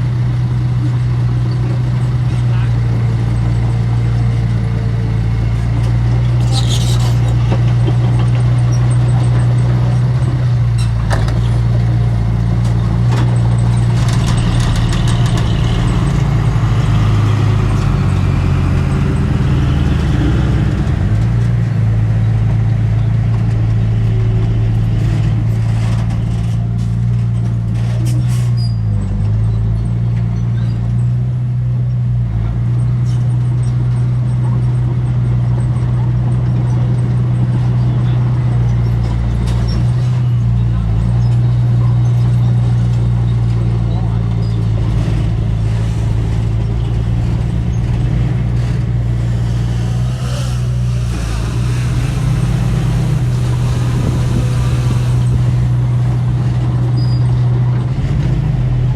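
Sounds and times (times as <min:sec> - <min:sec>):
diesel engine of heavy machinery: 0:00.0 - 0:58.9
metal clanks and knocks: 0:06.4 - 0:09.9, 0:12.6 - 0:16.5.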